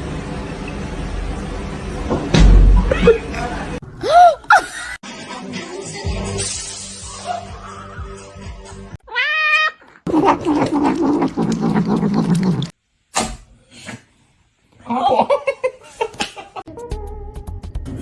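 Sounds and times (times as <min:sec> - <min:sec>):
cat meowing: 0:09.0 - 0:12.7.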